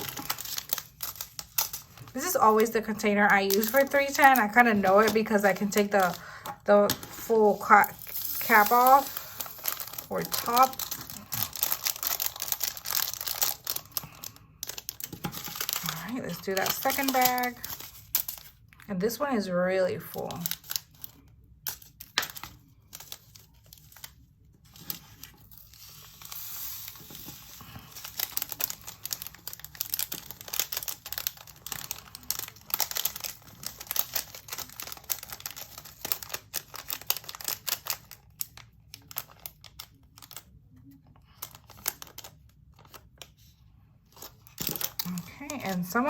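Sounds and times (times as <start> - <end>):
plastic bag crinkling: 0.0 - 18.8, 20.0 - 43.2, 44.1 - 46.0
tiny beads pouring into container: 8.0 - 10.8.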